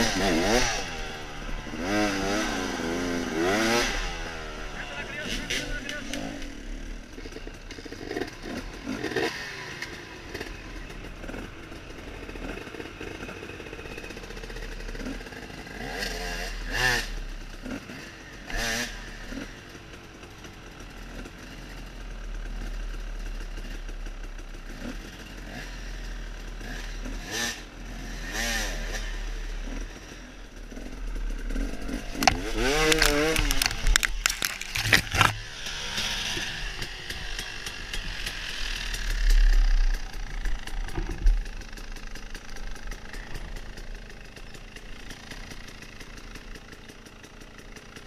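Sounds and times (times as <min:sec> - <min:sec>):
motorcycle engine revving: 0:00.0 - 0:48.0
sharp knocks and clatter: 0:31.6 - 0:43.9.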